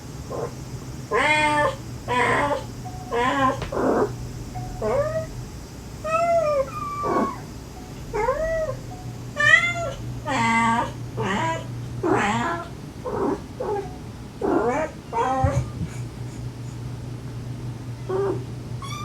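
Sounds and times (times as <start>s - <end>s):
cat and kittens meowing: 0.3s - 0.5s, 1.1s - 4.2s, 4.8s - 5.3s, 6.0s - 7.5s, 8.1s - 8.8s, 9.4s - 15.8s, 18.0s - 19.0s.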